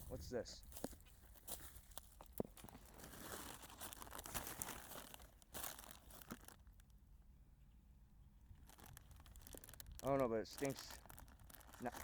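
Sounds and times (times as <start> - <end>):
plastic bag crinkling: 1.7 - 6.9, 8.5 - 12.0.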